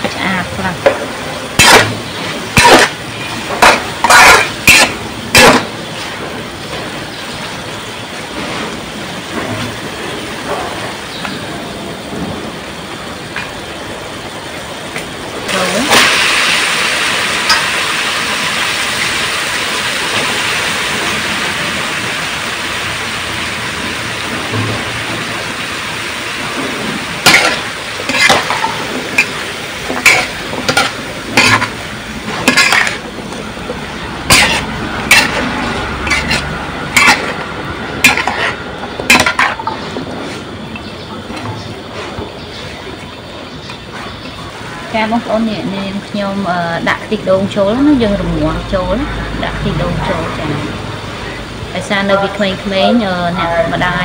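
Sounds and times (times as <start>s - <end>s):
meat sizzling in a wok: 0.0s - 11.3s, 12.6s - 40.9s
metal spatula scraping wok: 1.6s - 6.1s, 27.2s - 33.3s, 34.2s - 40.4s.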